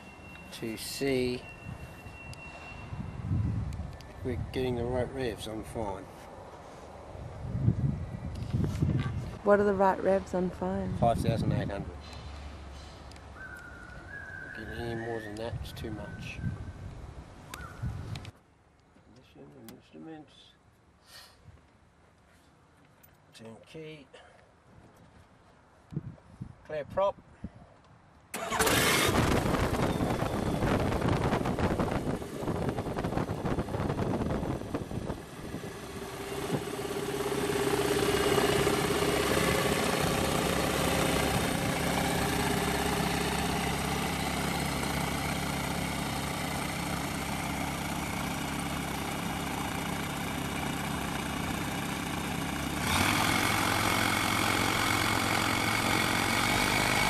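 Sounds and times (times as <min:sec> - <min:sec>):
light aircraft engine and propeller: 0:28.4 - 0:57.0.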